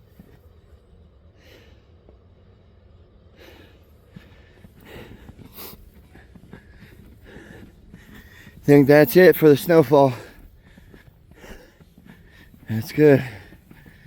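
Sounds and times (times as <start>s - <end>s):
steady low rumble: 0.0s - 14.0s
person breathing hard: 1.3s - 2.1s, 3.3s - 8.7s, 10.0s - 14.0s.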